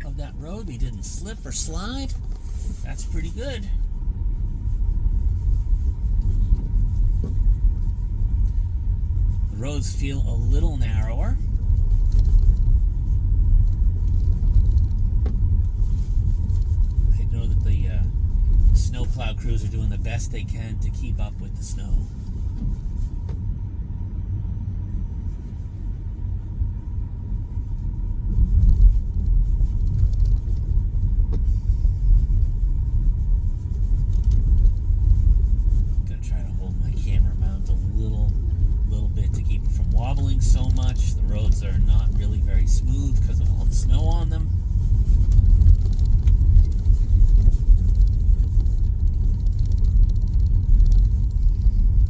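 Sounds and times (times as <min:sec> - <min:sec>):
tyres rumbling over snow: 0:00.0 - 0:23.5, 0:25.3 - 0:52.0
tyres rolling over snowy road: 0:28.2 - 0:52.0.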